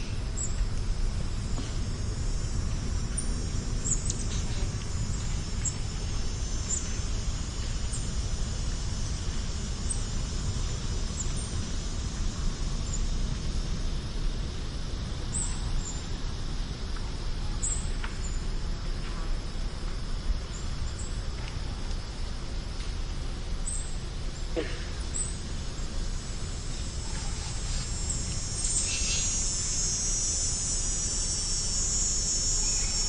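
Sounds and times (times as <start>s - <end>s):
steady low rumble: 0.0s - 31.8s.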